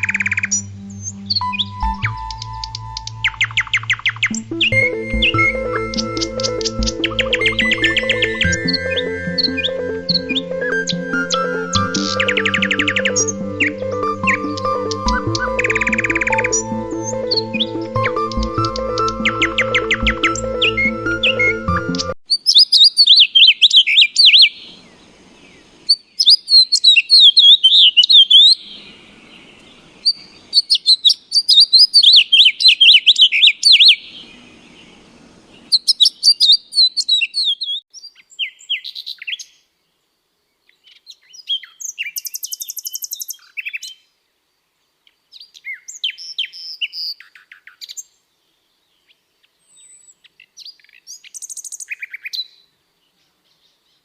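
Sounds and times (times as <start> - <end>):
birds chirping: 0.0 - 39.6.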